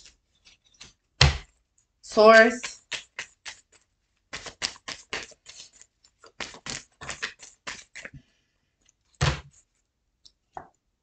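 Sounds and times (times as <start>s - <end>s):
cards being shuffled: 2.4s - 8.1s.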